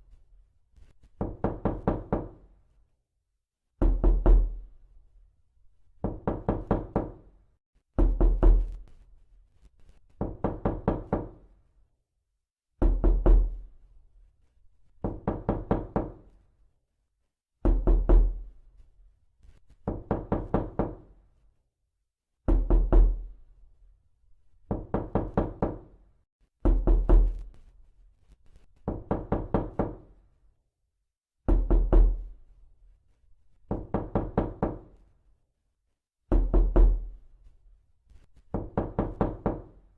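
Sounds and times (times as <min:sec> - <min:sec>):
knocking on a door: 0:01.1 - 0:02.4, 0:03.8 - 0:04.6, 0:06.0 - 0:07.3, 0:08.0 - 0:08.8, 0:10.2 - 0:11.4, 0:12.8 - 0:13.6, 0:15.0 - 0:16.4, 0:17.6 - 0:18.4, 0:19.8 - 0:21.1, 0:22.4 - 0:23.3, 0:24.7 - 0:25.9, 0:26.6 - 0:27.5, 0:28.8 - 0:30.1, 0:31.5 - 0:32.3, 0:33.7 - 0:35.0, 0:36.3 - 0:37.2, 0:38.5 - 0:39.8.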